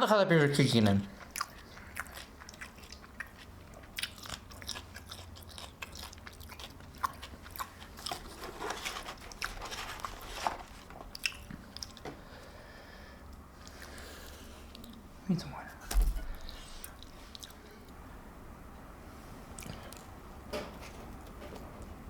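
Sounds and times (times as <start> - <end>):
food crunching while chewed: 1.1 - 12.1, 16.3 - 17.7, 19.5 - 20.1.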